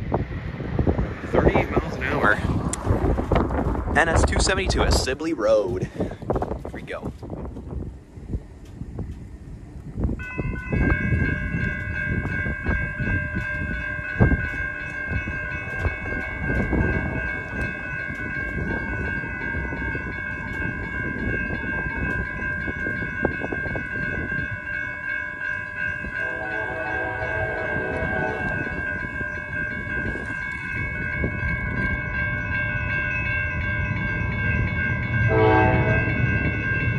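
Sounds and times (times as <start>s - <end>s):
lower tone: 7.8s - 36.9s
steady high-pitched tone: 9.3s - 36.9s
train wheels clacking on rails: 10.1s - 36.9s.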